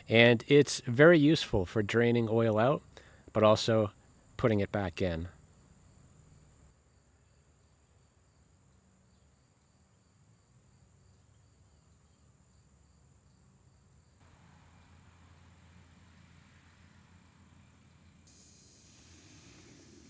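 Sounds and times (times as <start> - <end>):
faint hiss: 0.0 - 8.6, 14.2 - 20.0
cricket chirping: 5.2 - 14.3.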